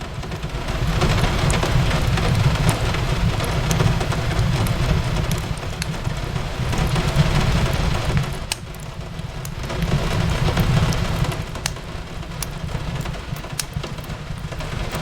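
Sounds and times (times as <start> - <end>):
rain on a window: 0.0 - 15.0
fireplace crackling: 0.2 - 15.0.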